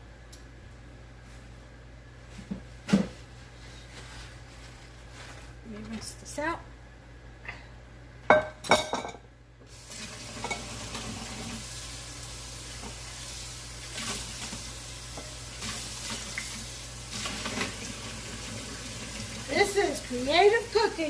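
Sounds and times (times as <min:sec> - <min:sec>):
faucet running into sink: 0:09.9 - 0:11.7, 0:15.6 - 0:20.2.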